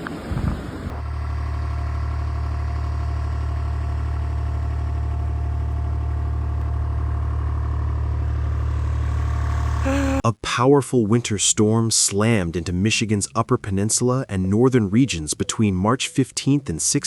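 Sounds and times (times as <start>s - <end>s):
wind-like rush: 0.0s - 0.9s
engine idling: 0.9s - 10.2s.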